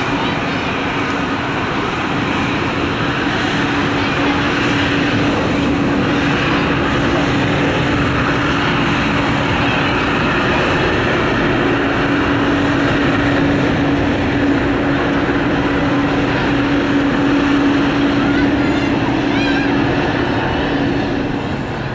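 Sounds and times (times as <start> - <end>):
jet engines droning: 0.0 - 21.9.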